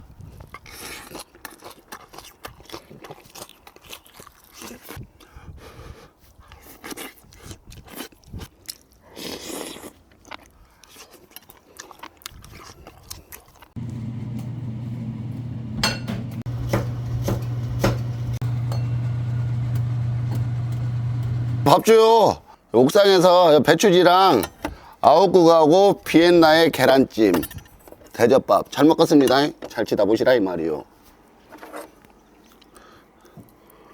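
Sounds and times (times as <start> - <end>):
crunching and chewing food: 0.1 - 13.9, 31.0 - 33.9
steady low hum: 13.8 - 21.7.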